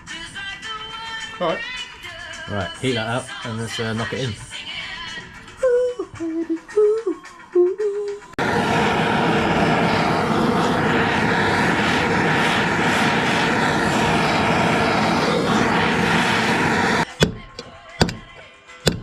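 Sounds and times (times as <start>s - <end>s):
heating tool blowing: 8.4s - 17.1s.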